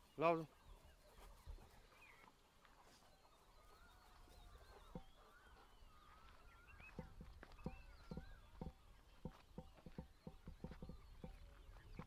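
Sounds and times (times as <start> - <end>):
soft knock: 7.0 - 11.4.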